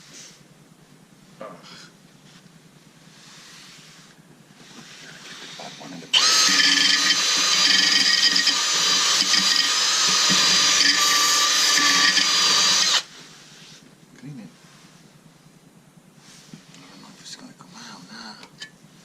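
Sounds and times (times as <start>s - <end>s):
power drill whining: 6.1s - 13.1s.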